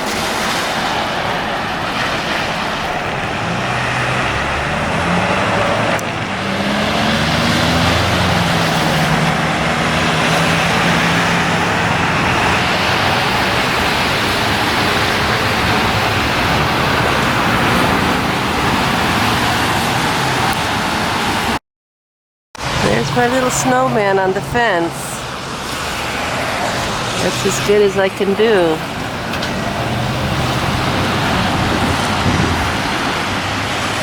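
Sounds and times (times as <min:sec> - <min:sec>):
passing vehicle engine hum: 0:00.0 - 0:21.6, 0:22.6 - 0:34.0
road traffic noise: 0:00.0 - 0:21.6, 0:22.6 - 0:34.0.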